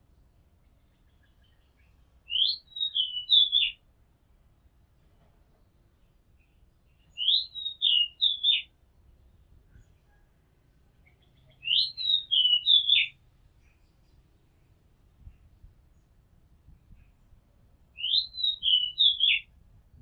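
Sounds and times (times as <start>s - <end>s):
bird singing whistled notes: 1.1s - 3.8s, 6.9s - 8.7s, 11.1s - 13.2s, 18.0s - 19.5s.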